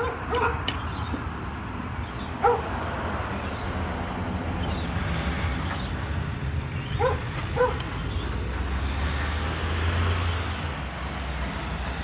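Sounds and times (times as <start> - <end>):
dog barking: 0.0 - 0.7, 2.4 - 2.7, 7.0 - 7.8.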